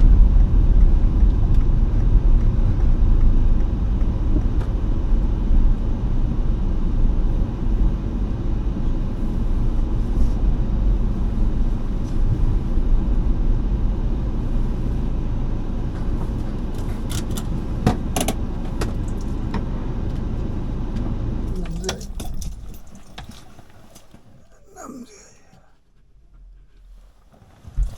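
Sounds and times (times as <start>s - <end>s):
low rumble: 0.0s - 16.7s.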